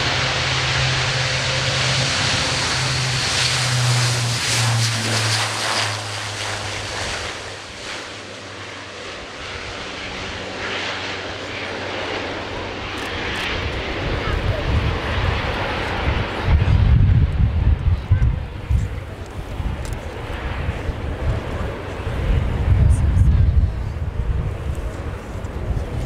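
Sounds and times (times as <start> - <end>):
turboprop aircraft droning past: 0.0 - 26.0.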